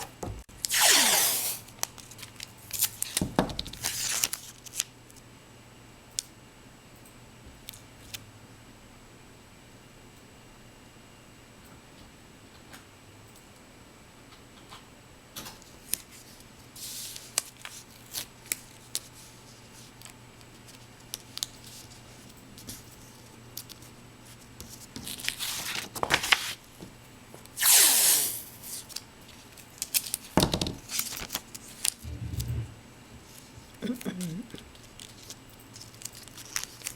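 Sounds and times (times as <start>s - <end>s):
paper tearing: 0.6s - 1.8s, 27.6s - 28.6s.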